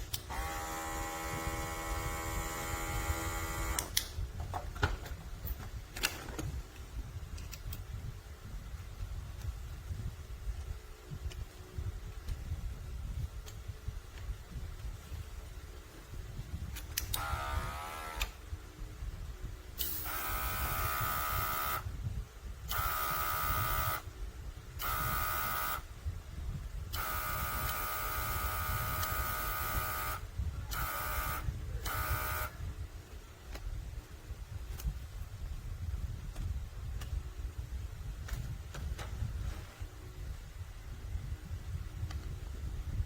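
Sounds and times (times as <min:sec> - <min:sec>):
airbrush compressor running: 0:00.2 - 0:04.0, 0:17.1 - 0:18.4, 0:19.8 - 0:21.8, 0:22.7 - 0:24.1, 0:24.8 - 0:25.9, 0:26.9 - 0:32.6.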